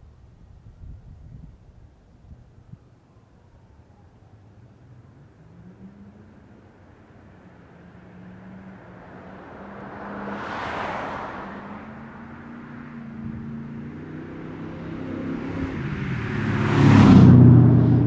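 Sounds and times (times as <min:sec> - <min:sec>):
car engine accelerating past: 0:05.5 - 0:18.0.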